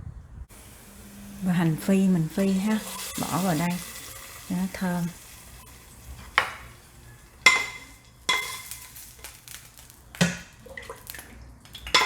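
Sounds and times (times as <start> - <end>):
metal spoon striking metal pot: 0.6 - 9.1.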